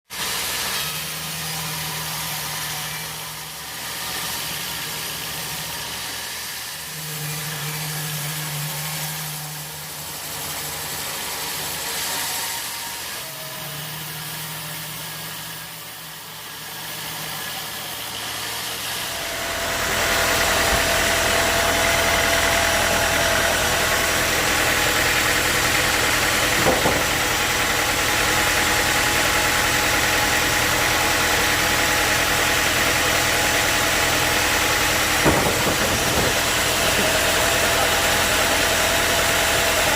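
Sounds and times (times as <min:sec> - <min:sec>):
sawmill engine running: 0:00.1 - 0:39.9
short knock: 0:26.6 - 0:27.3, 0:35.2 - 0:36.4.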